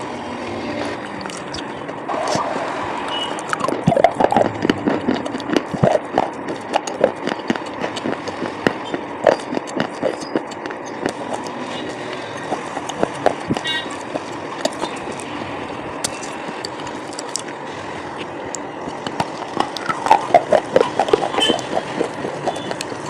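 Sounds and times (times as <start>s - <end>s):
chewing and crunching slate pencil: 3.4s - 15.4s, 16.0s - 17.6s, 18.9s - 23.0s.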